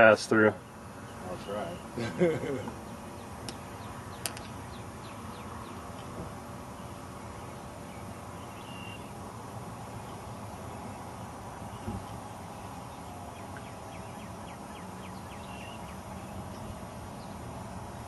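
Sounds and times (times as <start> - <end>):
outdoor background noise: 0.0 - 18.0
sharp clicks: 4.2 - 4.5
faint bird chirps: 6.8 - 9.2.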